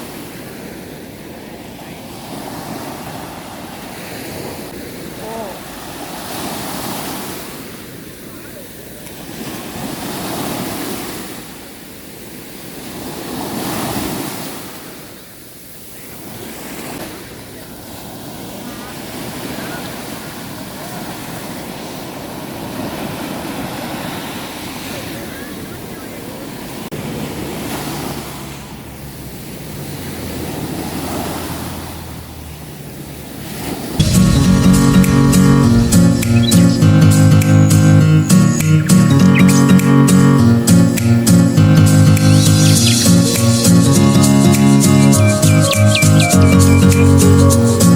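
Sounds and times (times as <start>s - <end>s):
sea waves washing onto shore: 1.6s - 11.6s, 26.3s - 47.9s
strummed acoustic guitar music: 34.0s - 47.9s.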